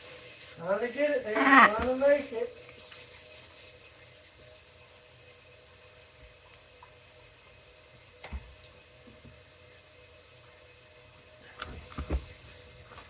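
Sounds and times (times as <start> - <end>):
water running from a tap: 0.0 - 13.0.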